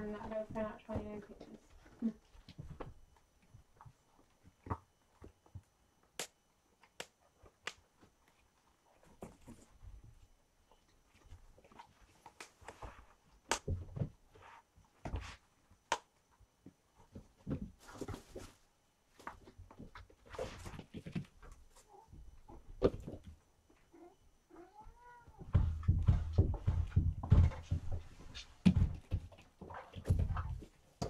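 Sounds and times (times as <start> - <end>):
soft thumps: 25.4 - 29.4.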